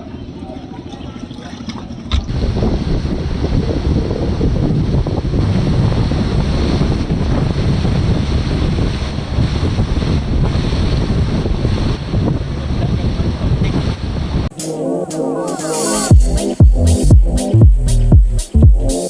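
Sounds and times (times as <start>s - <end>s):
water rushing along hull: 0.0s - 19.0s
wind buffeting microphone: 1.0s - 14.5s.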